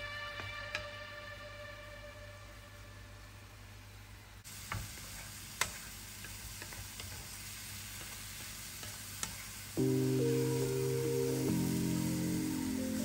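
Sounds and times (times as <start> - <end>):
background music: 0.0 - 3.7, 9.8 - 13.0
mushrooms sizzling in a frying pan: 4.4 - 13.0.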